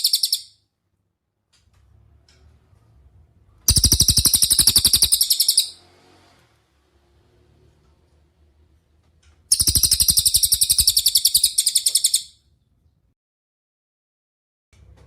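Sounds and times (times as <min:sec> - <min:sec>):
songbird high-pitched trill: 0:00.0 - 0:00.5, 0:03.7 - 0:05.8, 0:09.5 - 0:12.4.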